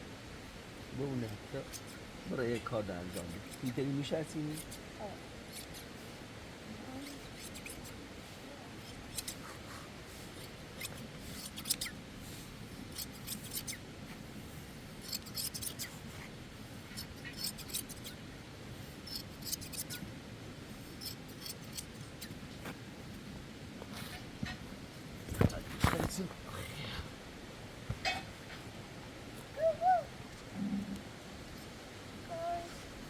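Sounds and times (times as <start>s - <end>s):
shears snipping fleece: 1.2s - 2.0s, 2.6s - 4.8s, 5.5s - 5.9s, 6.9s - 8.0s, 8.7s - 12.0s, 12.8s - 13.8s, 15.0s - 16.1s, 16.9s - 18.2s, 19.0s - 20.0s, 20.9s - 22.8s.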